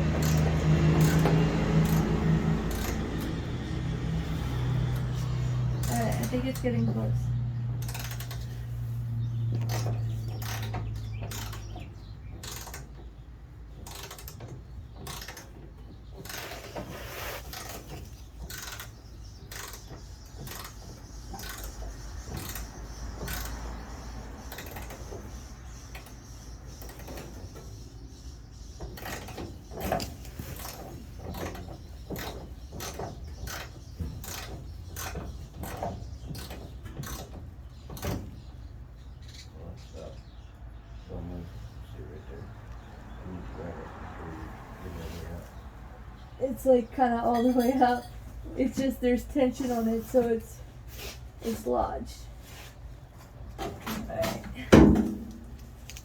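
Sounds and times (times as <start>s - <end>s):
metal clicks and knocks: 7.7s - 8.6s, 9.4s - 16.7s, 53.2s - 56.0s
ratchet wrench clicking: 7.8s - 8.5s.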